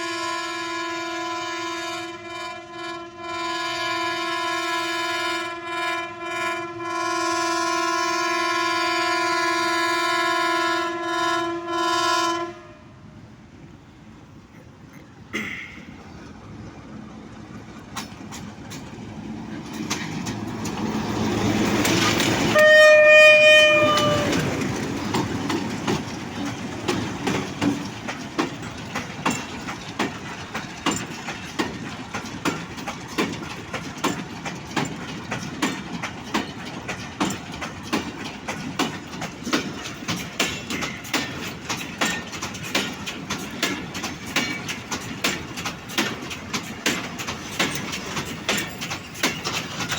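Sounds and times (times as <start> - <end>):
train horn blast: 0.0 - 13.1, 22.4 - 24.8
diesel locomotive engine: 0.0 - 49.9
train wheels clacking on rail joints: 14.5 - 49.9.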